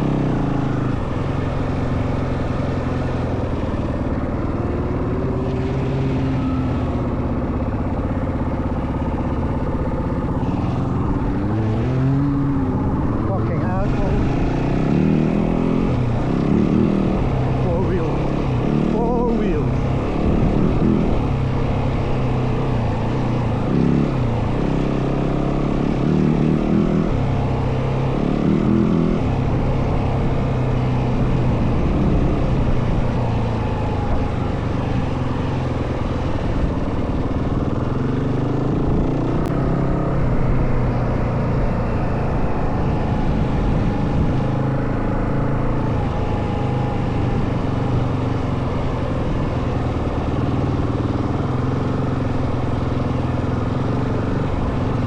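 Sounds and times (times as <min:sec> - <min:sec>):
dirt bike engine revving: 0:10.4 - 0:33.5.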